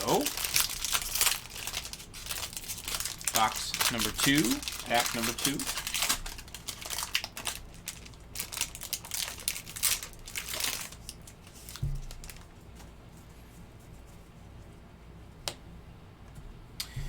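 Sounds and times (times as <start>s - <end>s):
foil wrapper crinkling: 0.0s - 12.6s
soft thump: 11.8s - 12.0s.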